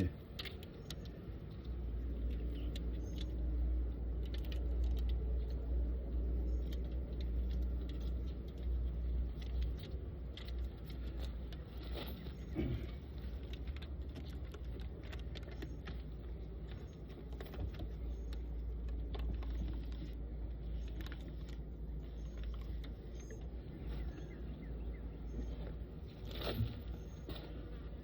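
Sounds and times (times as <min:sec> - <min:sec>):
hive clicks and rattles: 0:00.0 - 0:28.0
low steady rumble: 0:00.0 - 0:28.0.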